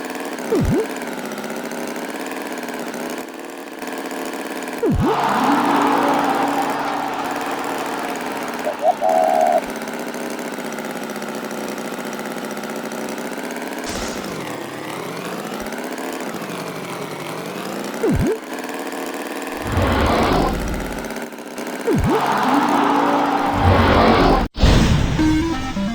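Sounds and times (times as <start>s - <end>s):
cartoon engine drone: 0.5s - 1.0s, 4.8s - 10.0s, 18.0s - 18.6s, 19.5s - 21.1s, 21.8s - 24.5s, 25.1s - 25.9s
sliding whistle: 4.8s - 9.7s, 21.9s - 24.4s
rough burst: 13.9s - 15.0s.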